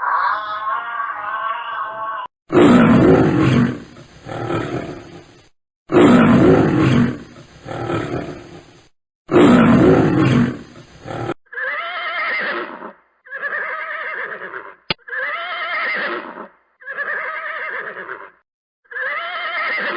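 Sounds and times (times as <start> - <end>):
wavering animal calls: 0.0 - 2.3
animal roars: 0.0 - 11.4.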